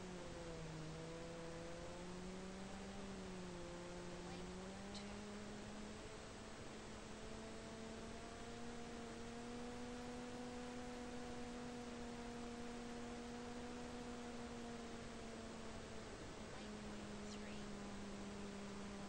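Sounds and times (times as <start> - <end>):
constant hiss: 0.0 - 19.0
electric motor and propeller drone: 0.0 - 19.0.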